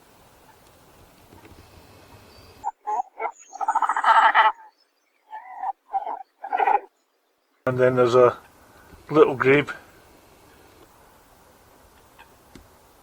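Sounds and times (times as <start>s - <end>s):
faint steady hiss: 0.0s - 13.0s
animal croaking calls: 2.6s - 6.9s.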